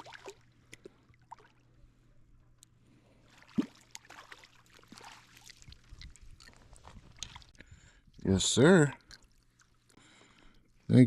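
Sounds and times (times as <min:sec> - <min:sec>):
river water splashing: 0:00.0 - 0:01.6, 0:03.2 - 0:07.6.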